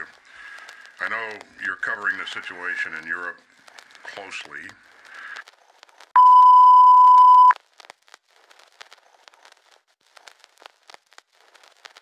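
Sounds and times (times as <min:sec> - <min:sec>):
faint crackling static: 0:00.0 - 0:12.0
loud steady beep: 0:06.2 - 0:07.6.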